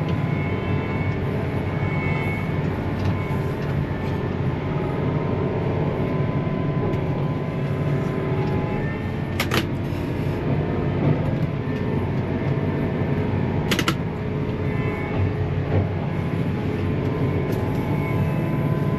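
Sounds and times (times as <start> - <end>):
tractor diesel engine under load: 0.0 - 18.9
sharp clicks: 13.7 - 14.0.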